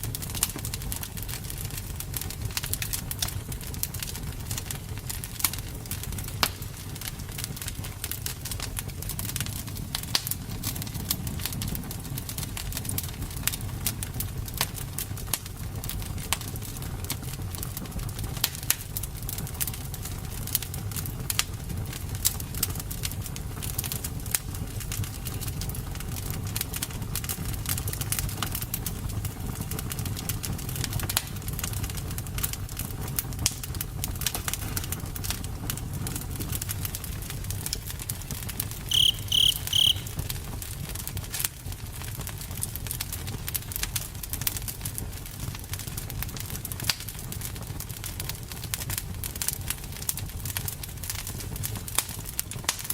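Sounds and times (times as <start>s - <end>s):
wood fire crackling: 0.0s - 52.9s
short high chirps: 38.9s - 40.1s.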